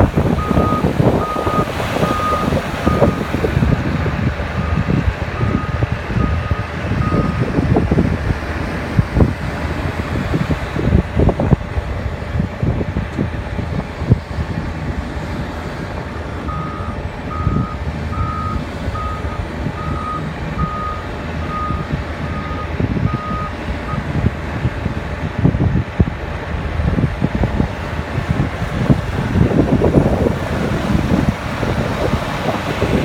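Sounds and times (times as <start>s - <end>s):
diesel engine running: 0.0s - 33.0s
reverse alarm beeps: 0.4s - 3.3s, 5.4s - 7.4s, 16.5s - 24.0s.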